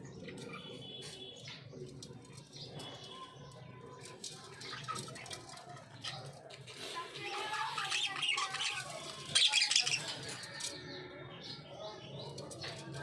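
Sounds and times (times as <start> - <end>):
budgerigars chirping and chattering: 7.2 - 13.0.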